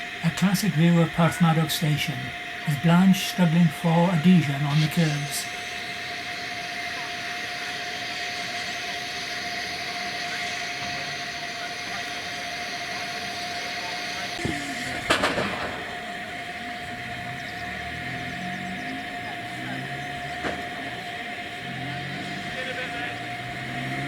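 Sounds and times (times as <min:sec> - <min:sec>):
steam locomotive working: 0:00.0 - 0:24.0
sharp loud crack: 0:14.4 - 0:16.6.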